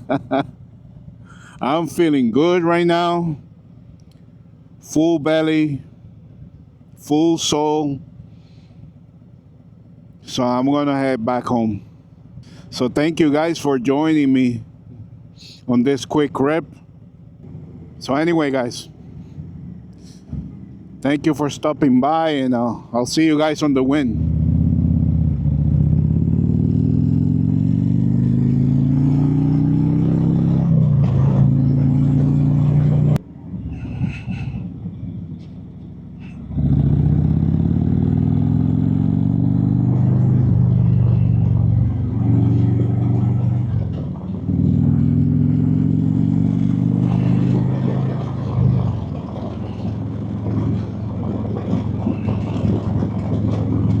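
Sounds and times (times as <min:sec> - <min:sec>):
motorcycle engine pulling hard: 0:24.0 - 0:54.0.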